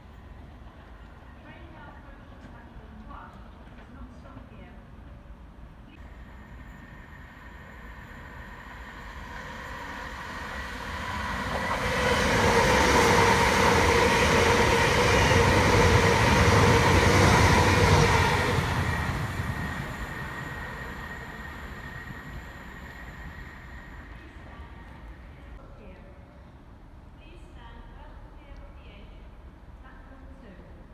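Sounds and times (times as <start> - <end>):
electric train passing: 6.0 - 25.5.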